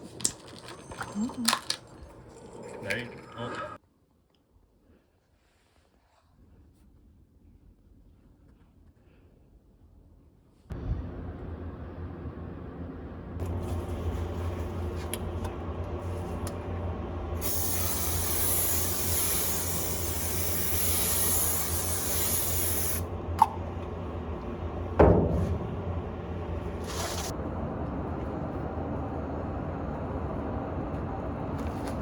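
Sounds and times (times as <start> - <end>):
low steady hum: 10.7 - 32.0
spraying hiss: 17.4 - 23.0
loud thump: 25.0 - 25.8.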